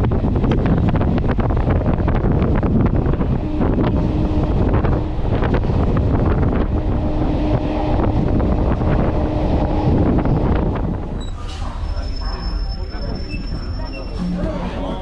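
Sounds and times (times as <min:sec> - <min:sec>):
train rumbling at speed: 0:00.0 - 0:15.0
wind buffeting microphone: 0:00.0 - 0:15.0
steady hum: 0:00.9 - 0:11.2.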